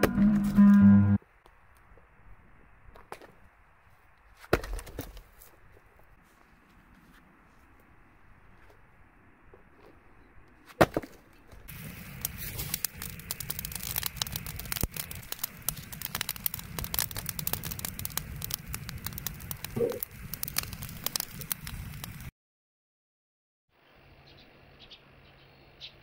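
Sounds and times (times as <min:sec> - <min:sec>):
bonfire crackling and popping: 0:10.8 - 0:22.3.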